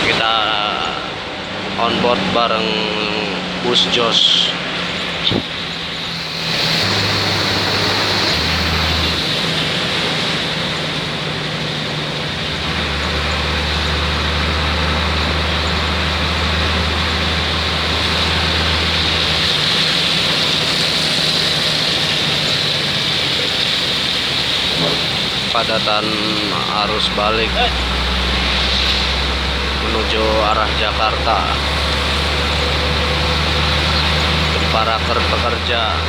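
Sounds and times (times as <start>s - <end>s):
bus engine drone: 0.0s - 36.0s
rain on a bus: 0.0s - 36.0s
tyres hissing on wet road: 0.0s - 36.0s.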